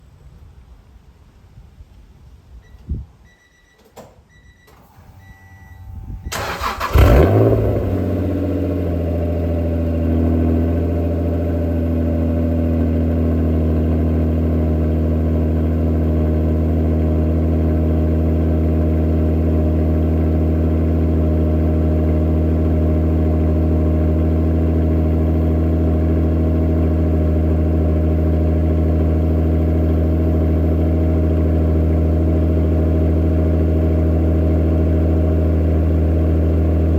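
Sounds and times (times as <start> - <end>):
short beeps: 2.6 - 6.4
starter cranking engine: 6.3 - 7.8
car engine revving and idling: 6.3 - 36.9.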